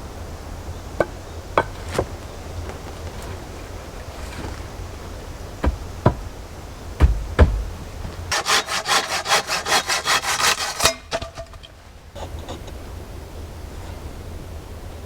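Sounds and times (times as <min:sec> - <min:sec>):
knocks on wood: 0:01.0 - 0:02.2, 0:05.6 - 0:08.4
hand saw cutting wood: 0:04.1 - 0:06.3, 0:07.0 - 0:11.7.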